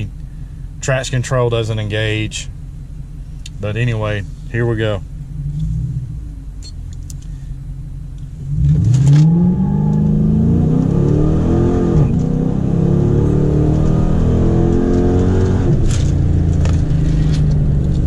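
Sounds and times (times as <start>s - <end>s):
car engine revving hard: 8.4s - 17.9s.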